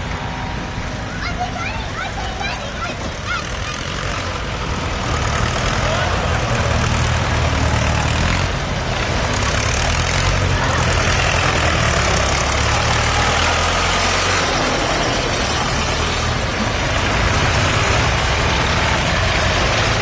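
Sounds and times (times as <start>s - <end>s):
tractor diesel engines running: 0.0s - 20.0s.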